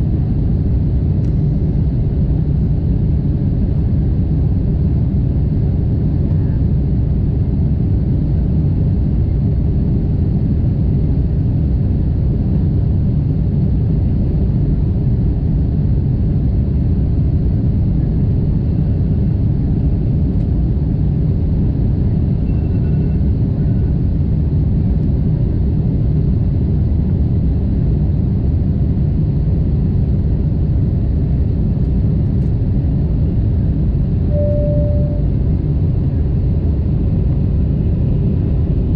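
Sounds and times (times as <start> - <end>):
airplane cabin rumble: 0.0 - 38.9
short clear tone: 34.3 - 35.4.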